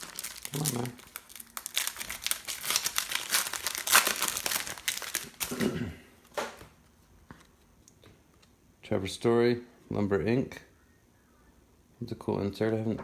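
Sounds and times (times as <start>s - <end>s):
foil wrappers crinkling: 0.0s - 6.4s.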